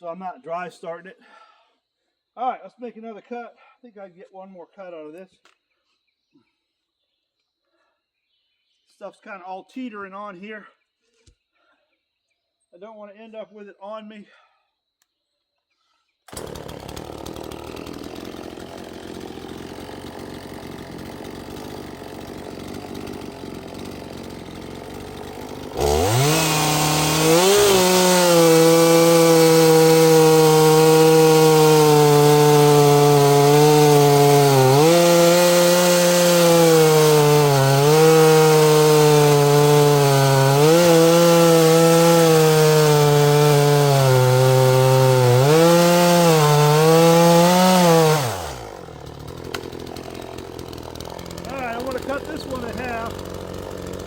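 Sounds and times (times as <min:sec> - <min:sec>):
chainsaw cutting log: 0:16.3 - 0:54.0.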